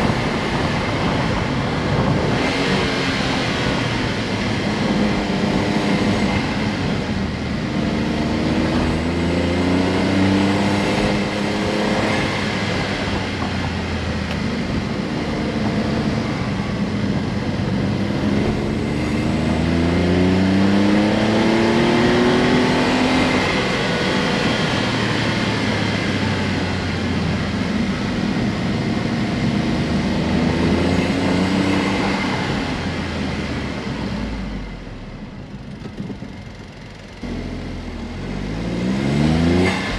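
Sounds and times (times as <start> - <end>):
car engine accelerating: 0.0 - 39.9
road noise: 0.0 - 39.9.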